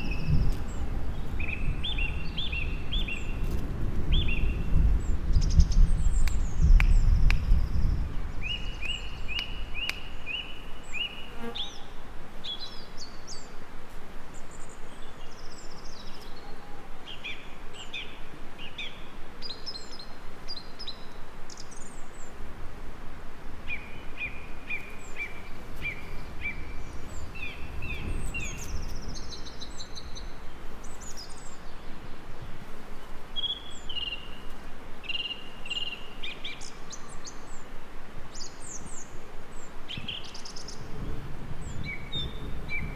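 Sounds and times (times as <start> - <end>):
songbirds chirping and trilling: 0.0 - 13.5, 23.7 - 42.9
background hiss: 0.0 - 42.9.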